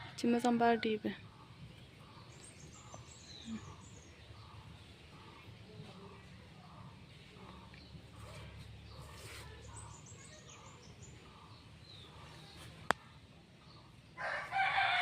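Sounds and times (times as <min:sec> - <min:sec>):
rooster crowing: 0:14.2 - 0:15.0.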